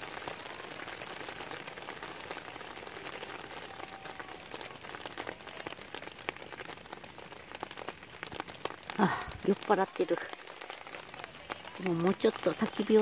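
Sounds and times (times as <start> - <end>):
rain pattering on a tarp: 0.0 - 13.0
sharp ticks and drips: 4.5 - 13.0.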